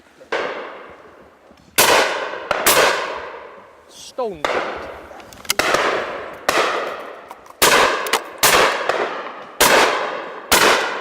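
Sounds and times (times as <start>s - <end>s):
shotgun shots with echo: 1.8s - 3.6s, 4.4s - 4.9s, 5.6s - 11.0s.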